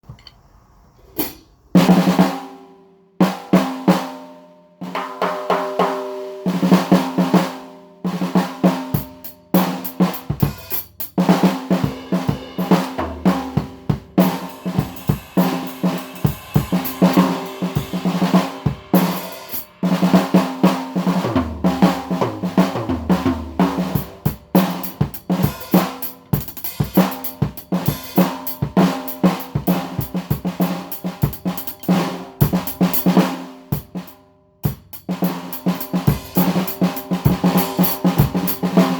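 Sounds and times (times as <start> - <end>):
snare drum runs: 8.2 - 34.1, 34.8 - 38.9
bass drum: 11.8 - 19.3.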